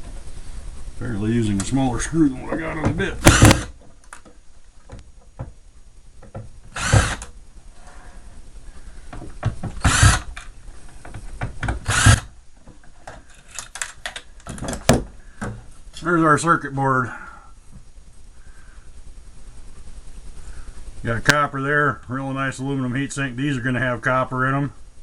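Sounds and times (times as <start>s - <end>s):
power drill spinning: 2.6s - 3.8s, 6.3s - 12.4s.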